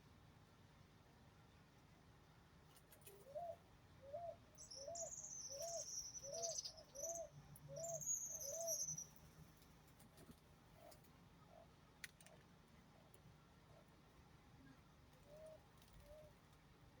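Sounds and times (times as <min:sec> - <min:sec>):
bird high wavering trill: 0:04.6 - 0:09.2.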